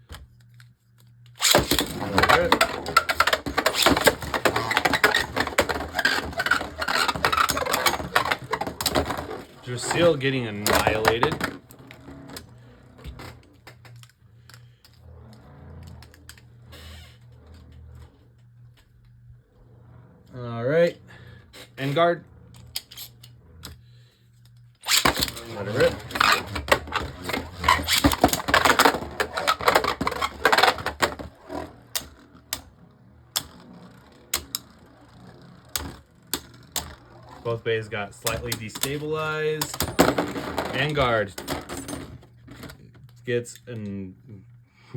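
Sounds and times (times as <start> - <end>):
plastic spinning tops clicking: 1.2 - 12.4, 24.4 - 41.4.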